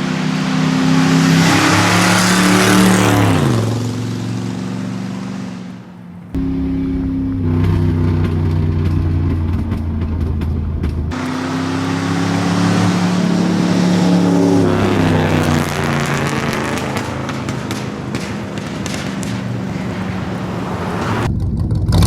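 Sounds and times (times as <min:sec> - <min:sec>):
car driving past: 0:00.0 - 0:21.3
car engine running: 0:00.0 - 0:22.0.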